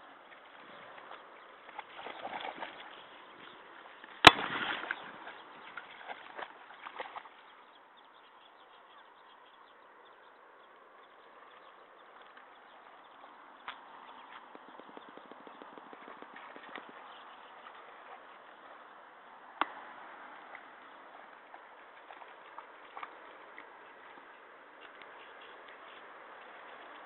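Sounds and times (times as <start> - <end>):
faint wash of water: 0.5 - 7.6
dog splashing in water: 1.1 - 3.2, 4.2 - 7.5.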